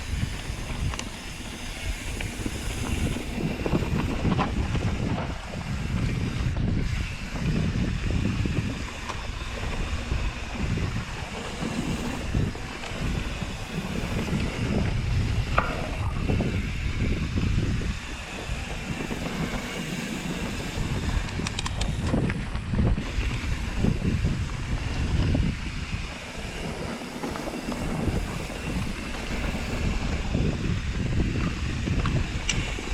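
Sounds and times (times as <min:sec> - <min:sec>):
bike ride rumble: 0:00.0 - 0:32.9
wind buffeting microphone: 0:00.0 - 0:32.9.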